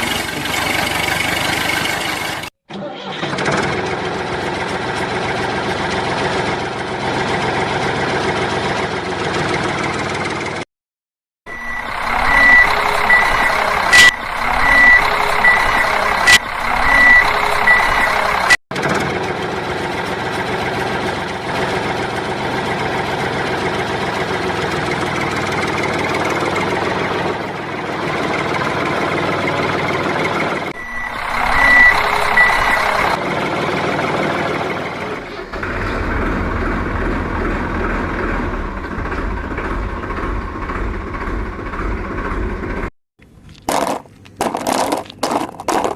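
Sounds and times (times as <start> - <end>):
truck engine noise: 0.0 - 10.6, 11.5 - 45.9
truck reversing alarm beeping: 11.5 - 18.6, 29.5 - 33.2
low engine rumble: 11.5 - 45.9.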